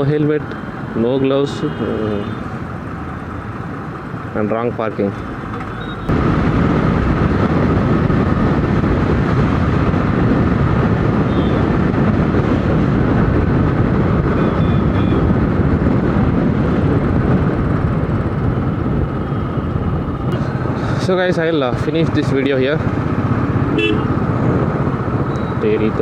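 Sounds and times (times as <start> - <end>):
wind rushing on microphone: 0.0 - 26.0
motorcycle engine running: 5.4 - 25.6.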